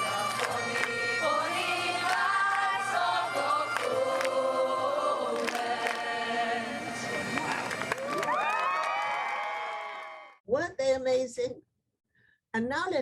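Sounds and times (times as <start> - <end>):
bagpipes playing: 0.0 - 8.2.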